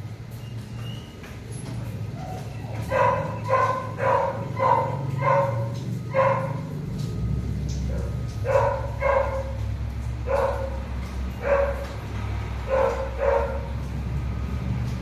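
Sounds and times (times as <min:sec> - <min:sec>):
dog barking: 0:02.2 - 0:06.7, 0:07.9 - 0:09.6, 0:10.2 - 0:12.0, 0:12.6 - 0:13.8.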